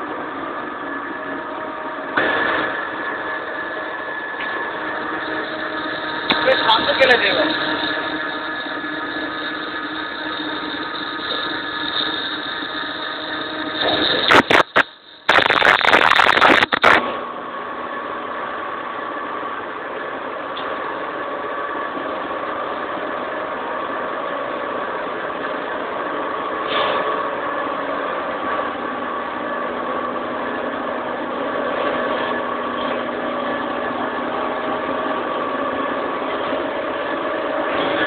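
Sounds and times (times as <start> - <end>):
machine tool humming: 2.0 - 17.1.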